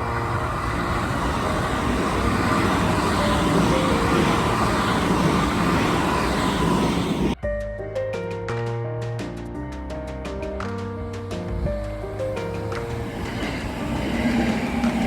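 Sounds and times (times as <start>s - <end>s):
electric train rushing past: 0.0s - 7.4s, 11.3s - 15.0s.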